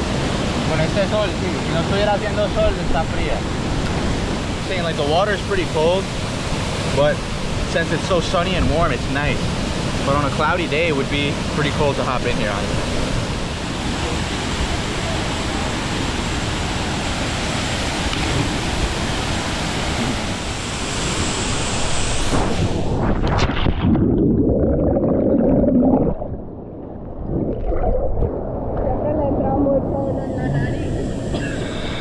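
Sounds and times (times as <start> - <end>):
river and waterfall rushing: 0.0 - 22.9.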